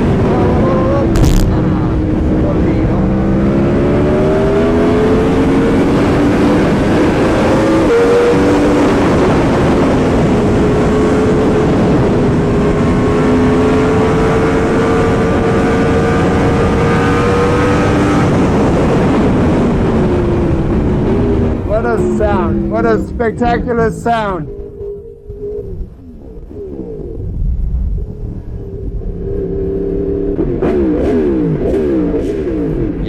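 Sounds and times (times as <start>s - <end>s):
motorcycle engine running: 18.6s - 33.0s.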